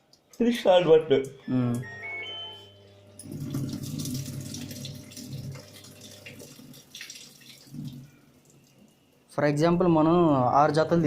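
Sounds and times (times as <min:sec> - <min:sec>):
washing machine water inflow: 0:03.1 - 0:09.4.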